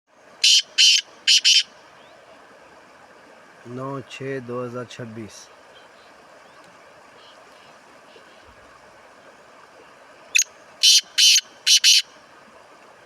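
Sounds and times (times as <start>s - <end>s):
faint steady hiss: 0.1s - 13.0s
bird harsh rasping call: 0.4s - 1.7s, 10.4s - 12.1s.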